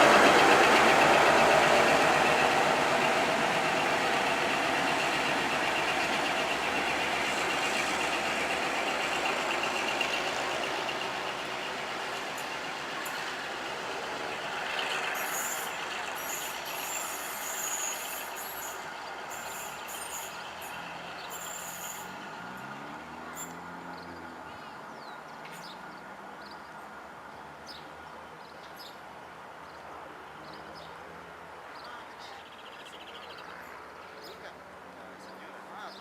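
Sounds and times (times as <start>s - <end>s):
diesel locomotive engine running: 0.0s - 24.7s.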